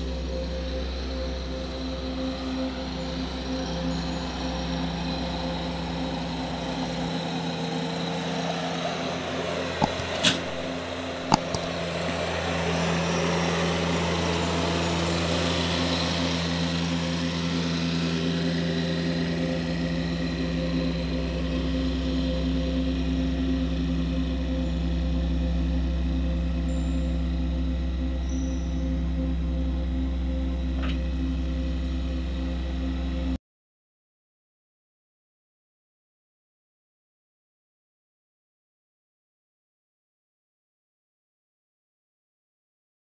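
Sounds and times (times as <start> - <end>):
engine running: 0.0 - 33.4
sharp clicks: 9.8 - 11.8.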